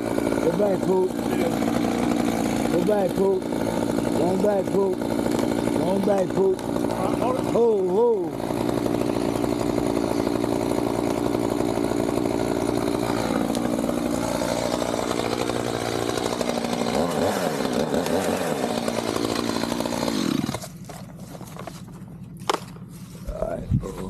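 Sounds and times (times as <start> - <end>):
chainsaw cutting wood: 0.0 - 23.0.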